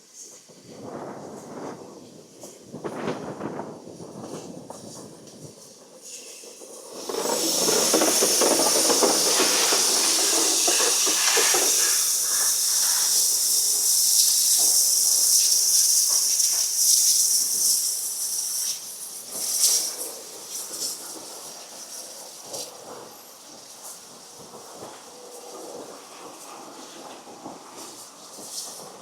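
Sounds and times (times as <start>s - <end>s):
steam locomotive hissing: 0.0s - 29.0s.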